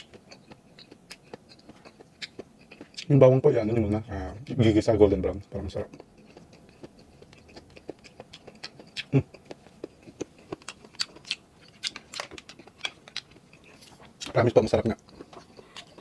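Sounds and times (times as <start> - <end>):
chewing mouth sounds: 0.0 - 3.1, 5.9 - 14.3.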